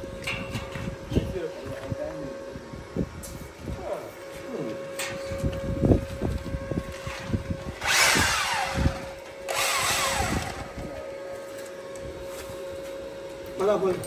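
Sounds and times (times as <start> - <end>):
steady hum: 0.0 - 14.0
electric power tool running: 6.3 - 11.8.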